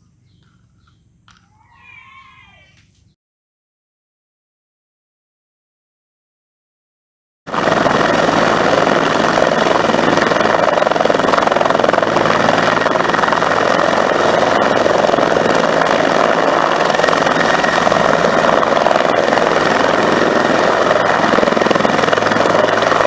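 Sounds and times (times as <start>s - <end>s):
helicopter rotor and engine: 7.5s - 23.0s.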